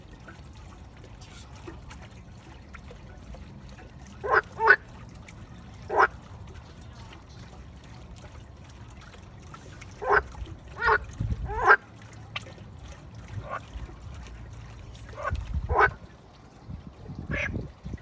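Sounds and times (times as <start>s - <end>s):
frogs croaking: 4.2s - 4.8s, 5.9s - 6.2s, 15.2s - 16.0s.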